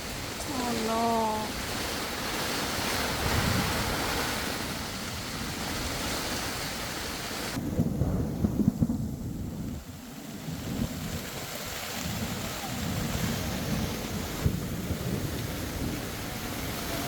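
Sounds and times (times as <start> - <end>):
gusty wind rumbling: 0.0 - 17.0
heavy rain hissing: 0.0 - 17.0.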